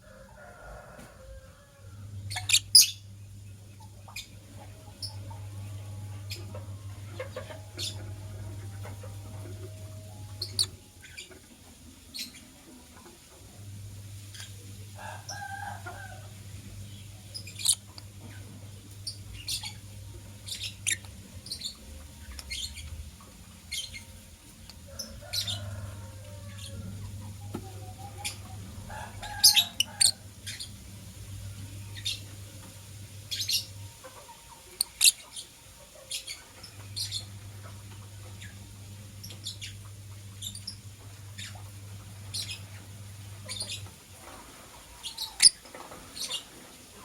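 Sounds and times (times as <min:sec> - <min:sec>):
low steady hum: 0:00.0 - 0:47.0
lovebirds chirping: 0:02.3 - 0:12.5, 0:16.8 - 0:25.8, 0:31.5 - 0:44.0, 0:44.9 - 0:46.6.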